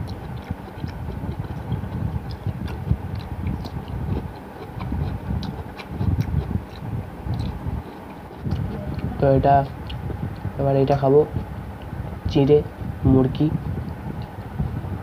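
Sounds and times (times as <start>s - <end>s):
person chewing with mouth clicks: 0.0s - 11.0s.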